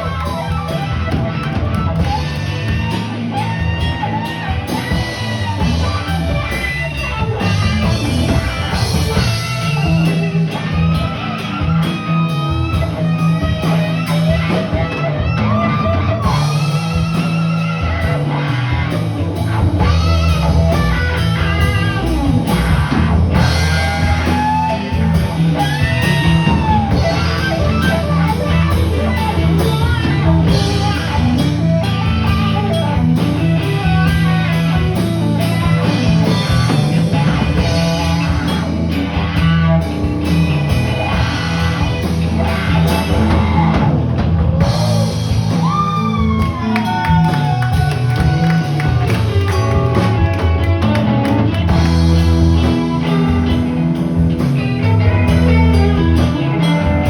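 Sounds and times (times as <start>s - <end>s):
bass guitar: 0.0s - 57.0s
drum kit: 0.0s - 57.0s
electric guitar: 0.0s - 57.0s.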